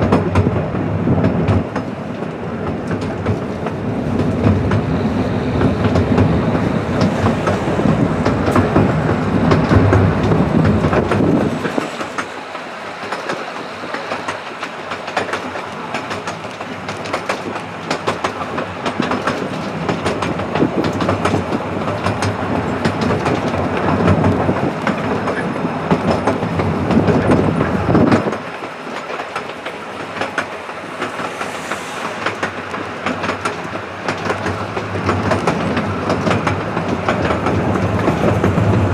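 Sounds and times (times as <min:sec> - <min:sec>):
train wheels clicking over rail joints: 0:00.0 - 0:38.9
heavy low rumble: 0:03.0 - 0:12.4, 0:37.0 - 0:38.9.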